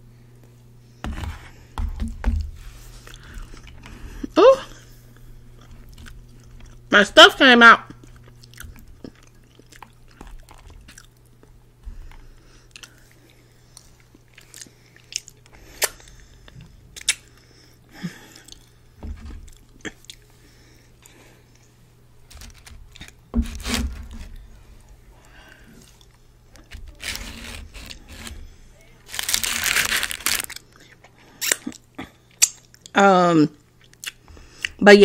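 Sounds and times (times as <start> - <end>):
steady low hum: 0.0 - 35.0
chewing crunchy food: 3.0 - 6.9, 7.9 - 17.5, 18.3 - 18.8, 19.4 - 20.3, 25.2 - 33.0, 33.6 - 34.8
wet mouth clicks: 17.0 - 17.3, 32.4 - 32.9, 33.8 - 34.8.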